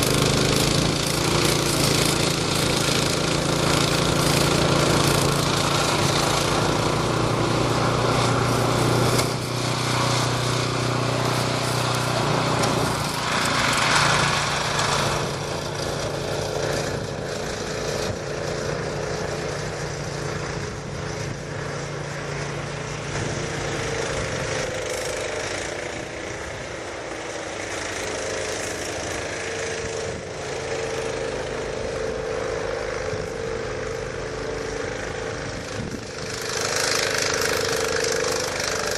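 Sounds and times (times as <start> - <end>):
snowblower engine running: 0.0 - 38.9.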